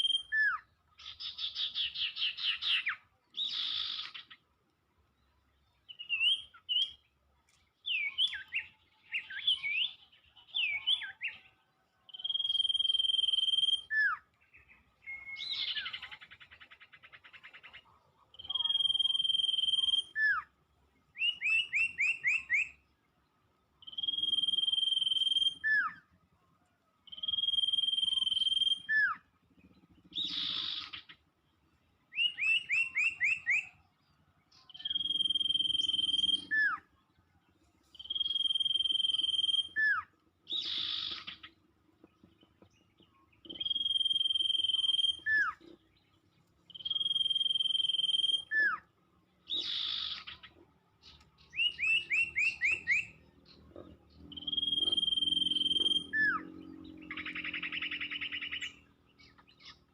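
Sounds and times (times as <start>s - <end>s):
rapid bird chirps: 0.0s - 4.5s, 7.8s - 23.0s, 23.6s - 26.3s, 27.0s - 59.9s
bird whistle with falling slur: 12.1s - 14.2s, 23.9s - 26.0s, 27.1s - 29.3s, 34.7s - 36.9s, 38.0s - 41.5s, 43.5s - 45.6s, 46.7s - 48.9s, 51.4s - 53.2s, 54.3s - 56.6s.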